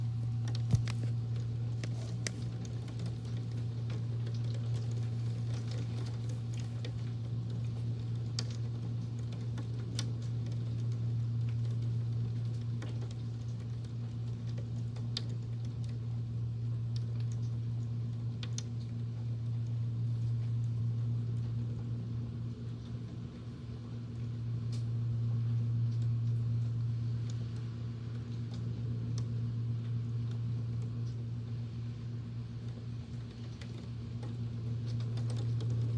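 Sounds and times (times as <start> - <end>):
fan humming: 0.0 - 7.0
rain: 0.0 - 35.9.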